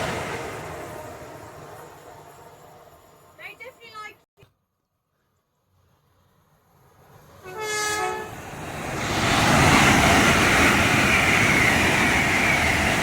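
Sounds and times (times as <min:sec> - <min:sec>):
train rushing past: 0:00.0 - 0:04.1, 0:05.8 - 0:13.0
train horn blast: 0:07.4 - 0:08.4.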